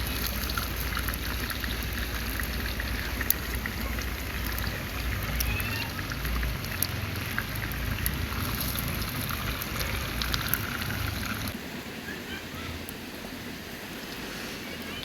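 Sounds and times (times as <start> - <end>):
sharp crackles: 0.0 - 11.6
river water running: 0.0 - 15.0.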